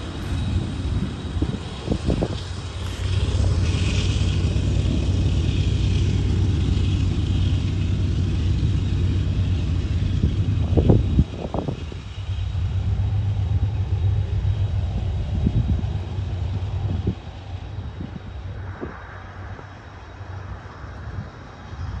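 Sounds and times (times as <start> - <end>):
train knocks: 0.0 - 17.4
freight train rumbling by: 0.0 - 22.0.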